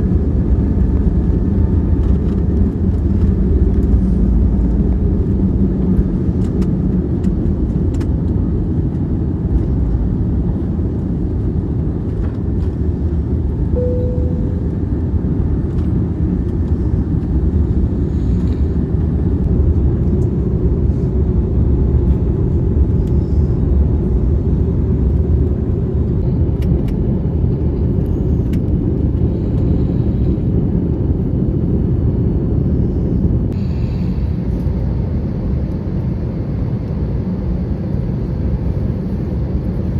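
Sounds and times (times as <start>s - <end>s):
aircraft cabin engine rumble: 0.0s - 39.9s
soft tone: 13.7s - 15.0s.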